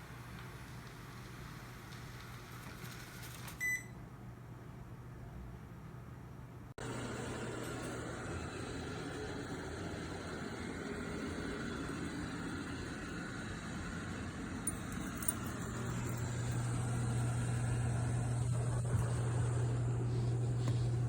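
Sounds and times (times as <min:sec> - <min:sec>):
robot vacuum cleaner running: 0:06.8 - 0:21.0.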